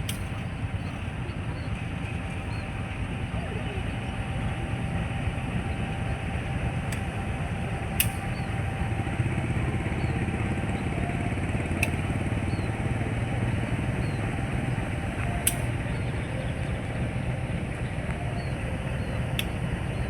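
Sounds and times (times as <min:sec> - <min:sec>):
sharp metallic clicks: 0:00.0 - 0:02.7, 0:06.8 - 0:07.3, 0:07.9 - 0:08.6, 0:11.6 - 0:12.7, 0:15.1 - 0:15.8, 0:19.2 - 0:19.7
diesel train engine running: 0:00.0 - 0:20.0.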